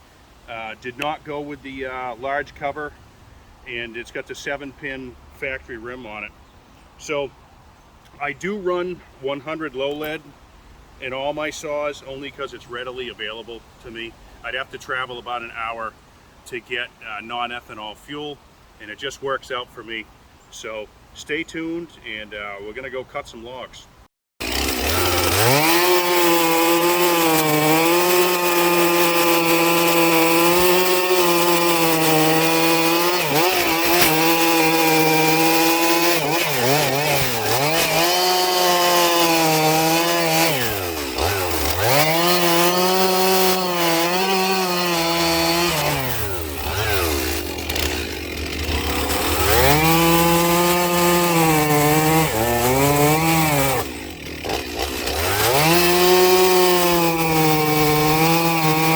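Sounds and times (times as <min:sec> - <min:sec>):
chainsaw cutting logs: 0:09.5 - 0:10.3, 0:24.4 - 0:58.9.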